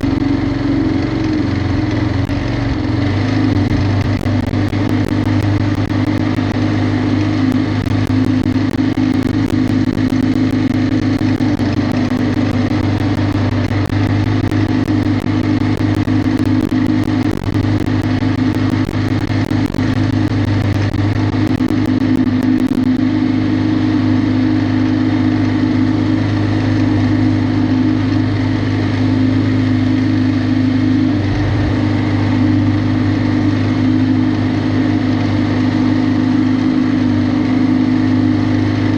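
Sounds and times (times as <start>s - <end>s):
lawn mower engine running: 0.0s - 22.4s.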